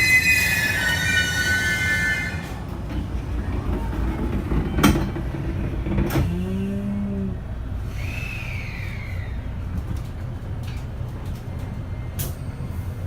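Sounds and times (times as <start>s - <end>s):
train wheel squeal: 0.0s - 2.7s, 3.4s - 5.2s, 7.9s - 9.5s, 11.8s - 13.0s
train low rumble: 0.0s - 13.0s.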